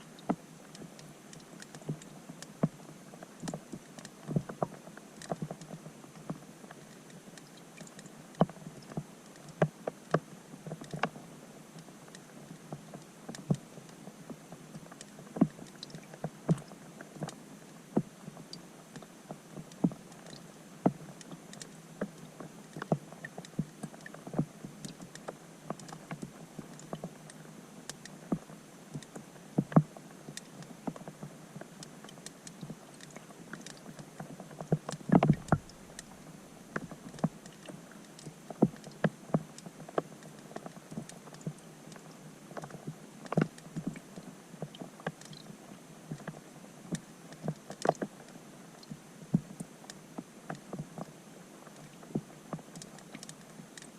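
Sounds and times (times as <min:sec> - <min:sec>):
steady underwater hiss: 0:00.0 - 0:53.9
raindrops plinking underwater: 0:14.7 - 0:45.5.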